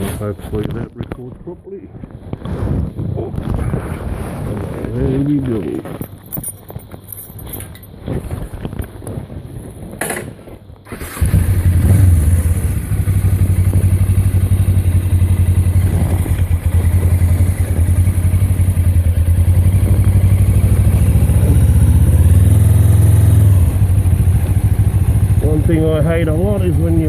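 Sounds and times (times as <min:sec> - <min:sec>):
knocks and clatter: 0:05.8 - 0:08.9
motorcycle engine running: 0:11.0 - 0:27.0.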